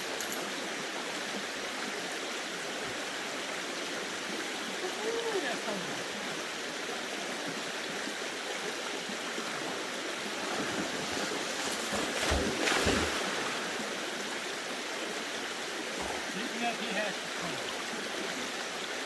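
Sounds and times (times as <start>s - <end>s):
creek water rushing over rocks: 0.0s - 19.0s
splashing and low thumps: 10.5s - 13.8s.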